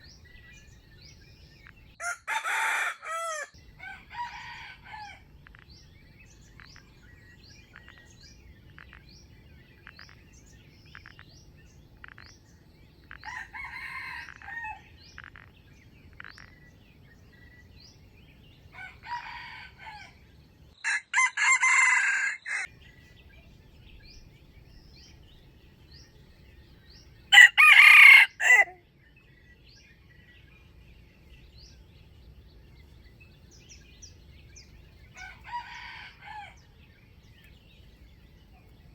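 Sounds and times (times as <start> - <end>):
roosters crowing: 2.0 - 5.4, 13.1 - 15.0, 18.7 - 22.7, 27.3 - 28.8, 35.1 - 36.8
faint chirp: 5.4 - 18.9.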